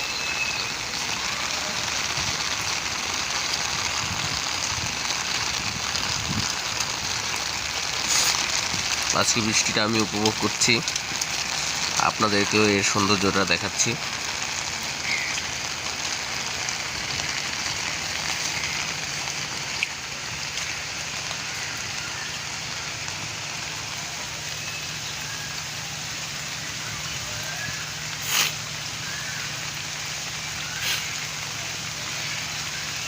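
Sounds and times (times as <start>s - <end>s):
rain hissing: 0.0s - 33.0s.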